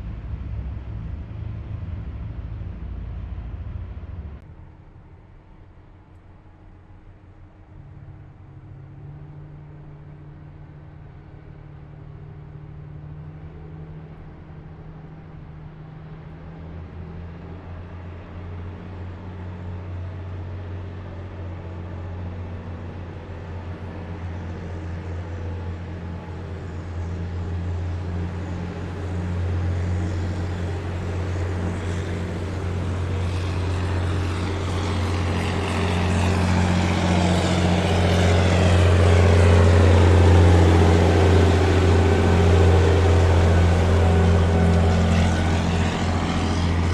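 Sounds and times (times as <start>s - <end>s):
heavy vehicle engines droning: 0.0s - 46.9s
rushing road noise: 0.0s - 46.9s.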